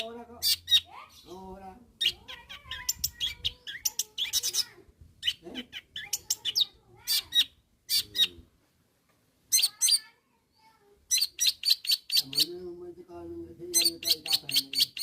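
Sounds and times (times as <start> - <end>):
shrike singing: 11.1 - 12.7, 13.6 - 15.0.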